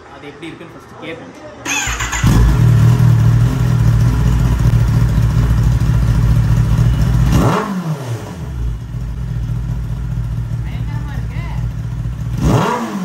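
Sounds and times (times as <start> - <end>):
loud motorcycle engine idling: 1.7 - 7.4, 8.4 - 12.4.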